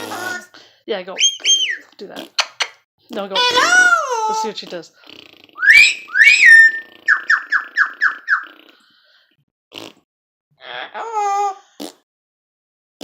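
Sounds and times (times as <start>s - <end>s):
parrot whistling calls: 1.2s - 1.8s, 5.6s - 8.5s.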